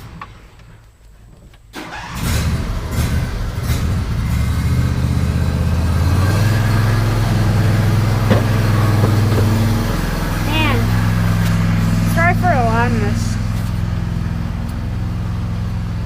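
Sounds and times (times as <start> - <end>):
tractor engine starting and idling: 0.0 - 16.0.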